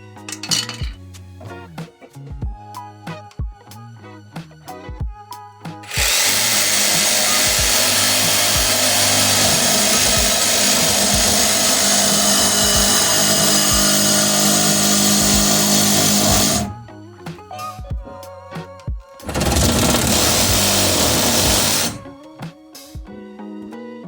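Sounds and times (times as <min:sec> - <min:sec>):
power tool running: 0:05.8 - 0:16.8, 0:19.2 - 0:22.1.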